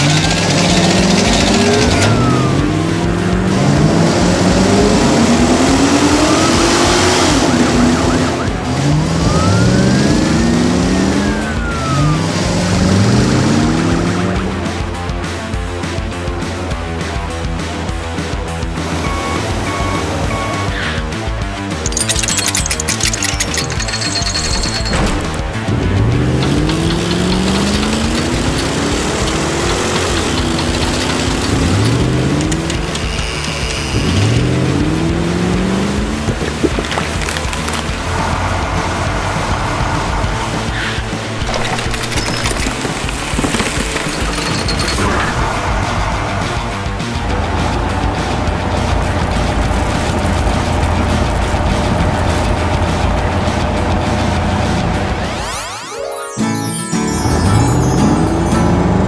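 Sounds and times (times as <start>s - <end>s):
cartoon engine accelerating: 0.0s - 14.6s, 54.7s - 59.0s
police siren wailing: 0.0s - 14.6s, 19.0s - 21.0s
cartoon engines revving: 0.0s - 59.0s.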